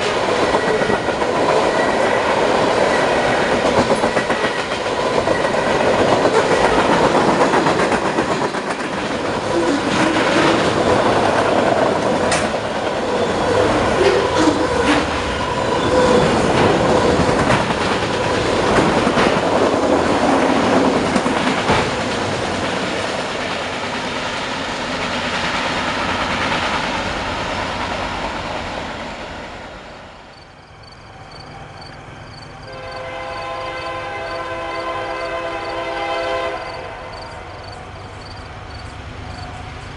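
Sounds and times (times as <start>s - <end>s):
train wheels clattering over rails: 0.0s - 29.7s
locomotive air horn: 32.6s - 37.1s.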